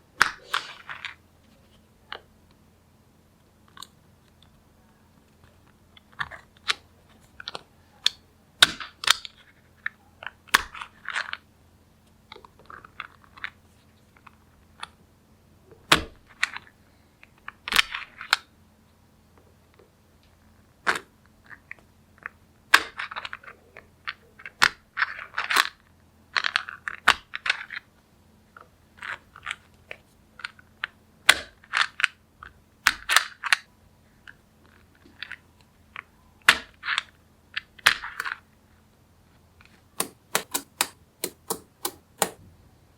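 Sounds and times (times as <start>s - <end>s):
magnetic balls clicking together: 40.0s - 42.4s.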